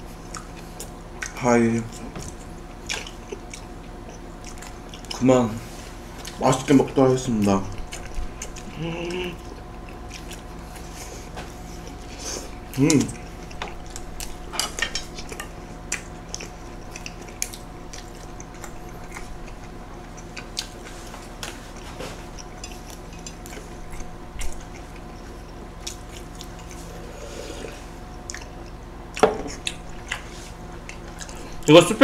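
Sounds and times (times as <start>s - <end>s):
faint hum: 0.0s - 32.0s
chewing and biting burger: 0.1s - 5.2s, 7.7s - 27.1s.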